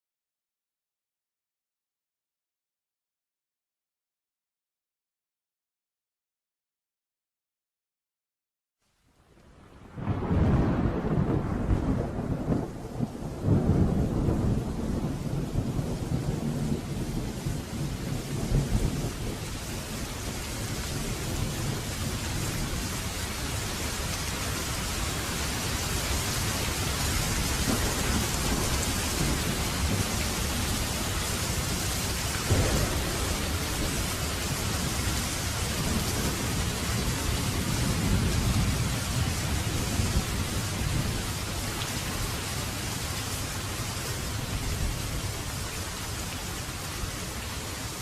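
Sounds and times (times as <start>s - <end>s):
heavy rain: 8.8s - 48.0s
thunder rumbling: 9.7s - 45.6s.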